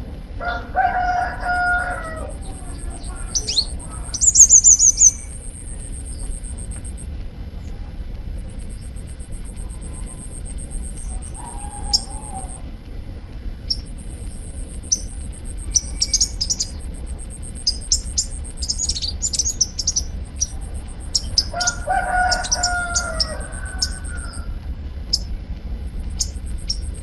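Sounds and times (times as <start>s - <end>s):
low hum: 0.0s - 27.0s
rooster crowing: 0.4s - 6.0s, 9.5s - 12.7s, 18.7s - 24.6s
bird high sharp chirps: 1.6s - 7.0s, 8.6s - 12.6s, 13.7s - 24.4s, 26.1s - 27.0s.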